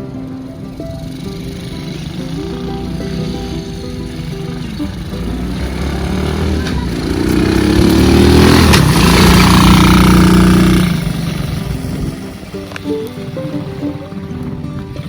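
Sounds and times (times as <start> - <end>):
vehicle engine passing by: 0.4 - 15.0.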